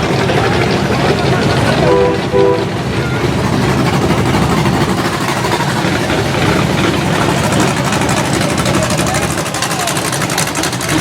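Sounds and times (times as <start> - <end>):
car engines idling: 0.0 - 11.0.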